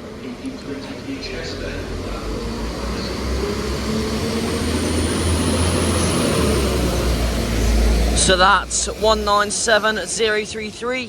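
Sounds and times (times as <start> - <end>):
diesel train engines rumbling: 0.0 - 11.0.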